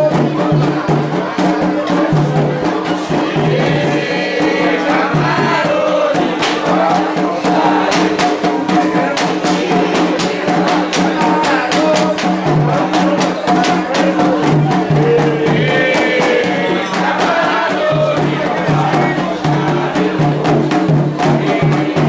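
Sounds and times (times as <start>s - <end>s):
group singing a chant: 0.0s - 22.0s
sharp percussion strikes: 0.0s - 22.0s.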